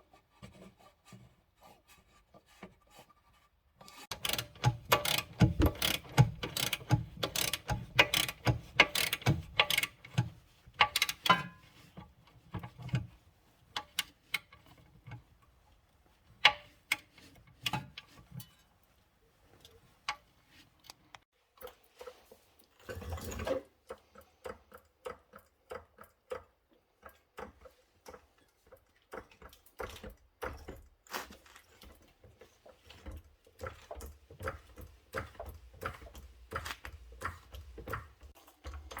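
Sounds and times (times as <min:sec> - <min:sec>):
hand tools clicking: 0:04.1 - 0:10.2.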